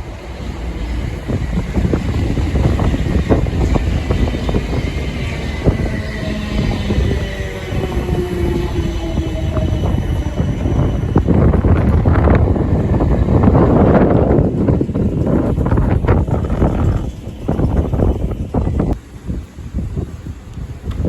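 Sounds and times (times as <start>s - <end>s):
steady tones sinking in pitch: 0.0s - 16.6s
train rumbling past: 0.0s - 21.0s.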